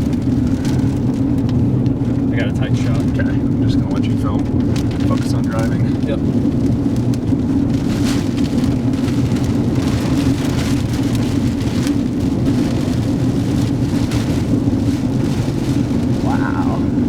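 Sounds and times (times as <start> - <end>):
car road and engine rumble: 0.0 - 17.0
rain hitting a car: 0.0 - 17.0.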